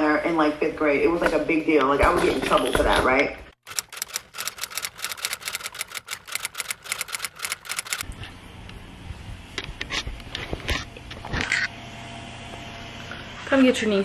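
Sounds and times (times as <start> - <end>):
typewriter keys clacking: 3.6 - 8.0.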